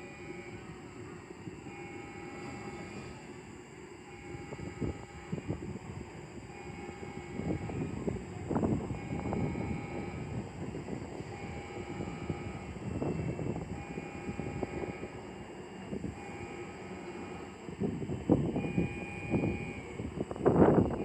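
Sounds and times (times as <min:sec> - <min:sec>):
low train rumble: 0:00.0 - 0:21.0.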